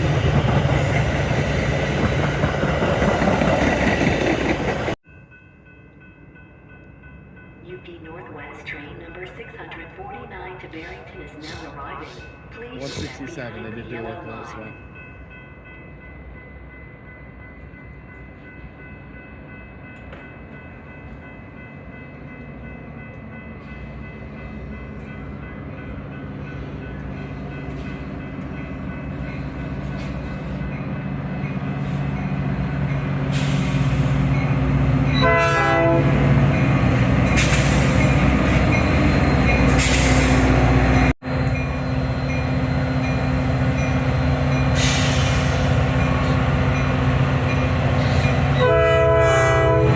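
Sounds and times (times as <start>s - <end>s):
diesel train approaching: 0.0s - 49.9s
locomotive horn: 35.1s - 36.5s, 48.0s - 49.9s.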